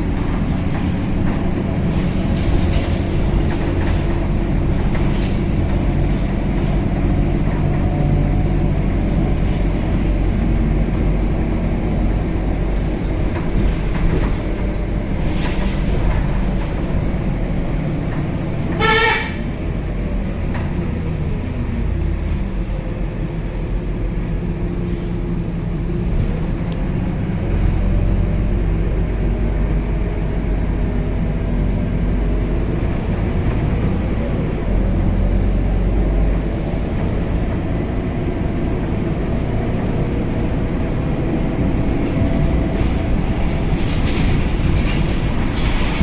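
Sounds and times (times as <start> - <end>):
bus diesel engine drone: 0.0 - 46.0
loud honk-like tone: 18.8 - 19.4.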